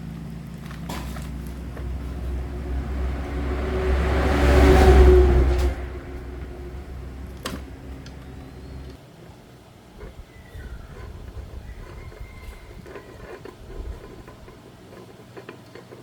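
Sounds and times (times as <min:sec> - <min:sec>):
engine revving: 0:00.7 - 0:09.0.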